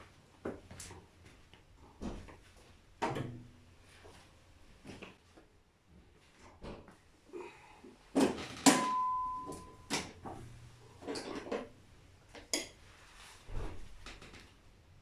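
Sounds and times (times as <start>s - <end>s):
loud metal strikes ringing: 8.7s - 9.8s.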